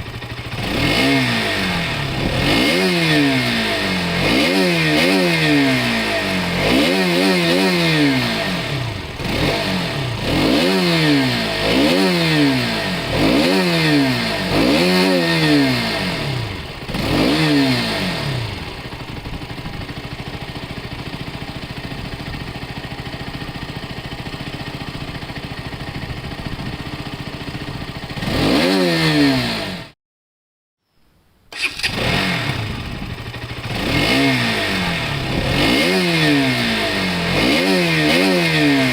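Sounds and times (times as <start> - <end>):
motorcycle engine revving: 0.0 - 30.0, 31.5 - 38.9.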